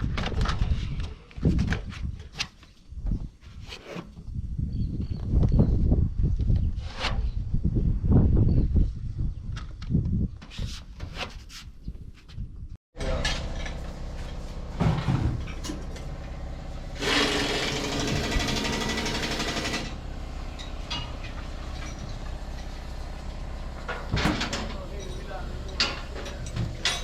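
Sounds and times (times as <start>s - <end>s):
motor humming: 13.0s - 27.0s.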